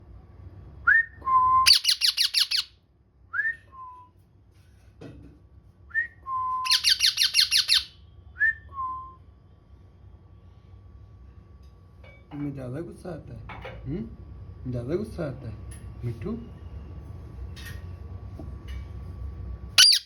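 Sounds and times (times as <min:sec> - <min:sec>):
parrot whistling: 0:01.3 - 0:02.7, 0:06.6 - 0:08.6, 0:19.8 - 0:20.0.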